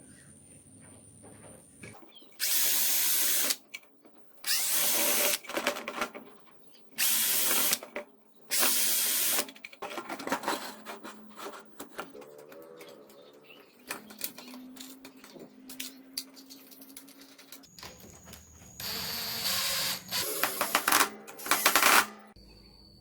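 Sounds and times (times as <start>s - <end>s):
electric drill bursts: 2.4s - 3.6s, 4.5s - 5.4s, 7.0s - 7.8s, 8.5s - 9.4s, 18.7s - 22.1s.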